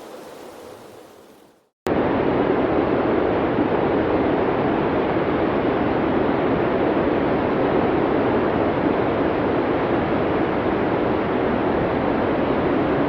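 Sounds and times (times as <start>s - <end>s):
snowstorm wind rushing: 0.0s - 1.6s.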